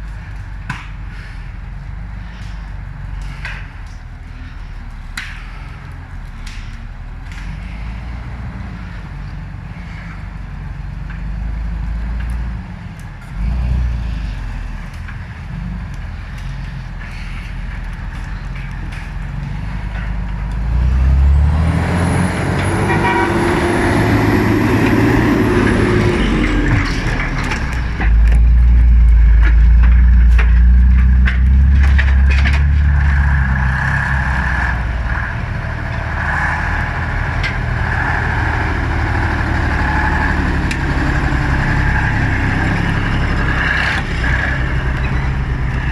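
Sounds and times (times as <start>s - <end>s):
truck engines revving: 0.0s - 45.9s.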